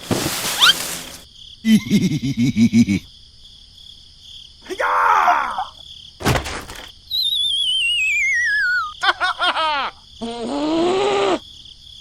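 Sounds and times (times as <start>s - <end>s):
descending warbling whistle: 7.1s - 9.0s.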